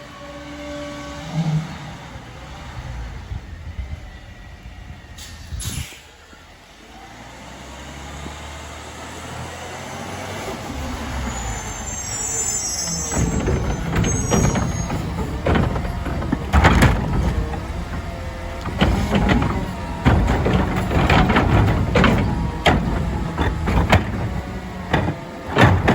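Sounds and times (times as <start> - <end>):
brake squeal: 0.0 - 6.6, 10.3 - 25.9
garbage truck engine: 0.0 - 25.9
clanks and knocks: 13.0 - 25.9.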